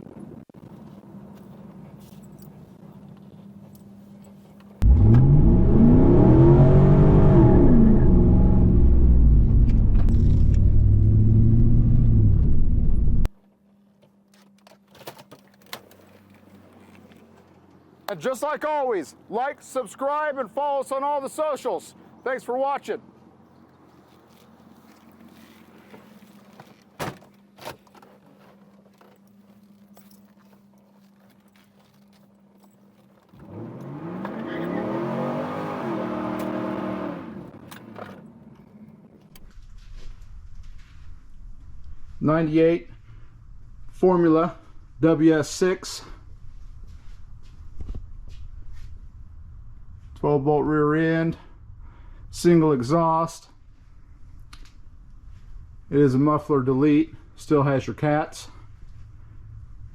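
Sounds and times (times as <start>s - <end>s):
car engine running: 4.8s - 13.3s.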